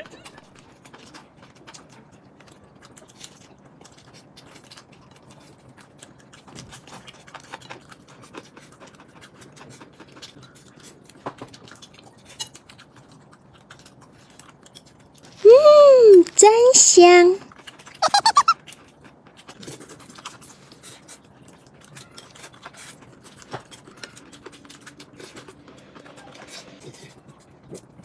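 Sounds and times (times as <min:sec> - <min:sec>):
chewing: 0:00.0 - 0:15.4, 0:17.5 - 0:28.0.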